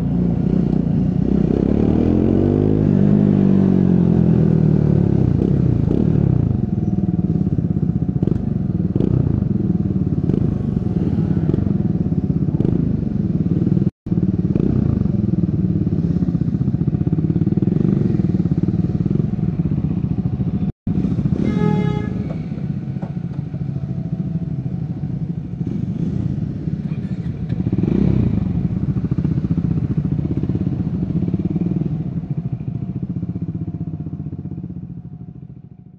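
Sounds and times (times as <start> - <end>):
motorcycle engine running: 0.0 - 35.9
horn: 21.4 - 22.4.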